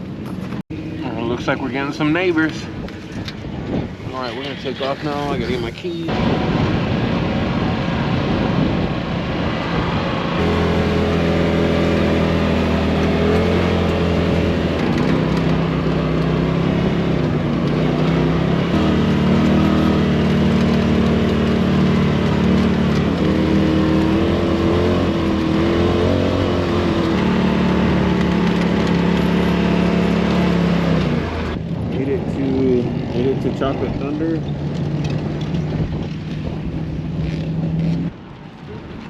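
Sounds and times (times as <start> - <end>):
vehicle engine running: 0.0 - 39.0
wind and road noise: 0.0 - 39.0.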